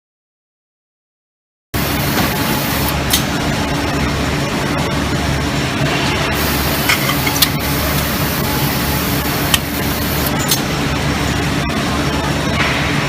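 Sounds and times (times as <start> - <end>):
compressed air hissing: 1.8 - 3.2, 6.4 - 10.5
factory machinery hum: 1.8 - 13.0
sharp clicks: 9.2 - 10.6.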